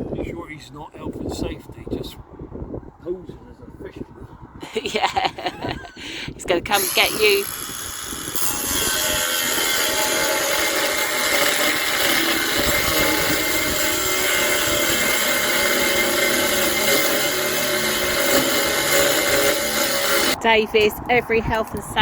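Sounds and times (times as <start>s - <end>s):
angle grinder on steel: 6.7s - 20.4s.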